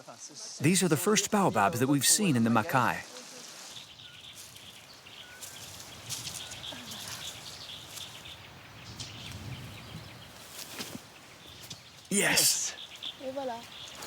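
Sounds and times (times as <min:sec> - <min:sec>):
low call or grunt: 0:12.1 - 0:12.8.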